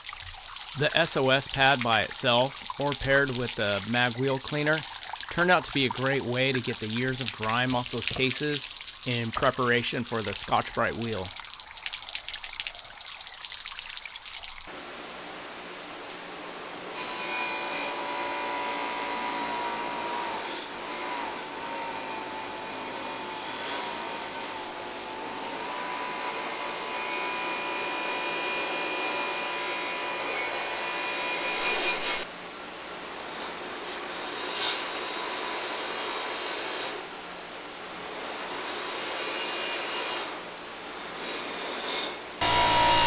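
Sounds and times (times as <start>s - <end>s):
buffing machine motor whine: 42.4s - 43.0s.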